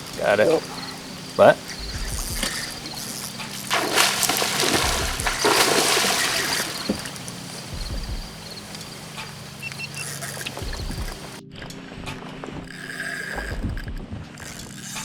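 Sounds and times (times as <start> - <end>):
water trickling: 0.0 - 11.4
water splashing and sloshing: 0.0 - 15.0.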